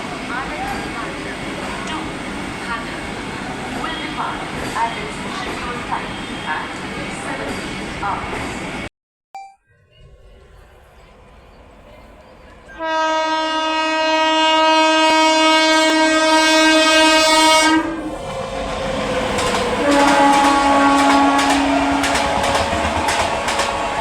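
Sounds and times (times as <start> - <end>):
locomotive horn blasts: 12.8 - 18.1, 19.8 - 24.0
train wheels clacking on rails: 18.1 - 24.0.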